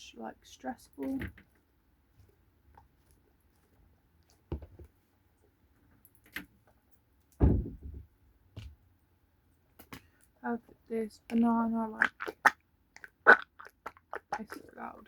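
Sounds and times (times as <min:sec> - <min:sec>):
soft handling knocks and rustles: 0:01.2 - 0:08.8.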